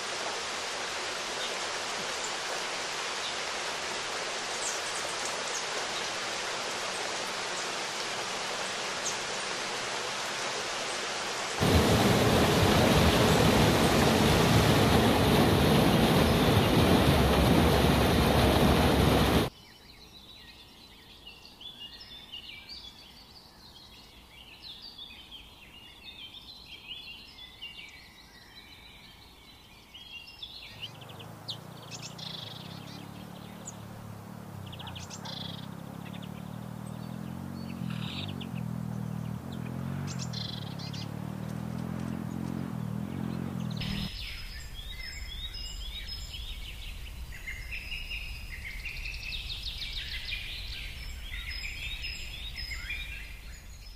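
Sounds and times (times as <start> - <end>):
low droning hum: 11.6 - 19.5
rushing noise: 11.6 - 19.5
small birds chirping: 18.0 - 53.9.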